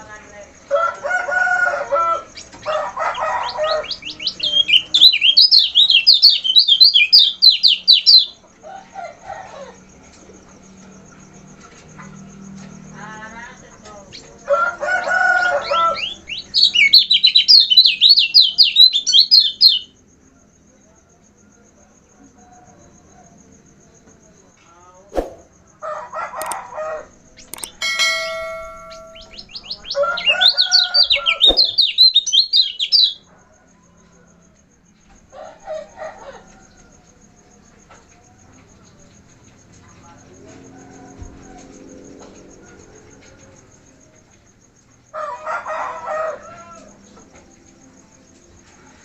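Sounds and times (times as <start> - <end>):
bird calls: 26.4 - 33.2
bird singing chattering notes: 27.4 - 29.9, 31.4 - 33.1
faint steady high tone: 27.5 - 29.7.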